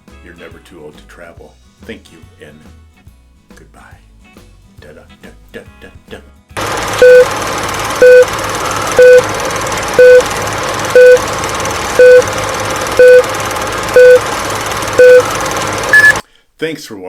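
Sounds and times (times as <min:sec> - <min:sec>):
short electronic beeps: 0:07.0 - 0:07.3, 0:08.0 - 0:09.3, 0:10.0 - 0:10.3, 0:10.9 - 0:11.2, 0:12.0 - 0:12.3, 0:13.0 - 0:13.3, 0:13.9 - 0:14.3, 0:15.0 - 0:16.2.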